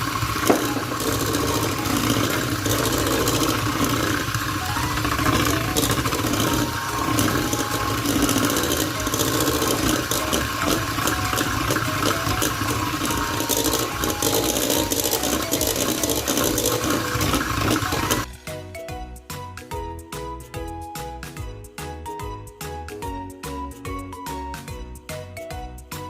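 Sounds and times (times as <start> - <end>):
kitchen appliance motor whirring: 0.0 - 18.3.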